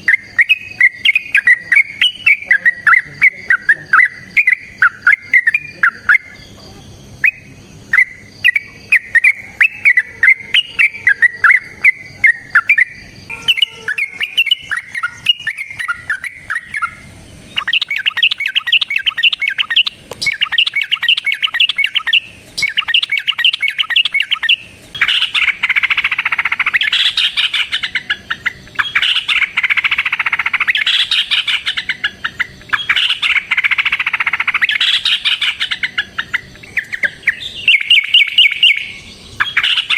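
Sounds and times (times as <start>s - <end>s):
birds singing bubbly chirps: 0.0s - 39.9s
dense loud bird chattering: 0.0s - 39.9s
bird rapid rolling runs: 9.9s - 39.9s.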